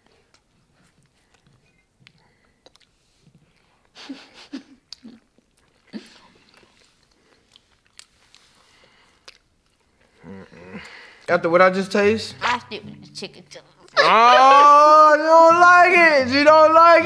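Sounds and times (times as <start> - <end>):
wet mouth sounds and clicks: 0.3 - 3.0, 4.9 - 5.9, 9.2 - 9.9
people biting and chewing: 4.8 - 11.3.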